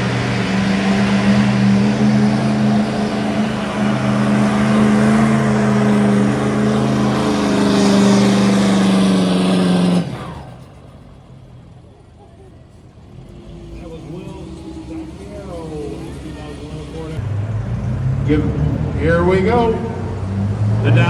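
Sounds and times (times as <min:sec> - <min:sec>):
diesel pickup engine revving: 0:00.0 - 0:21.0.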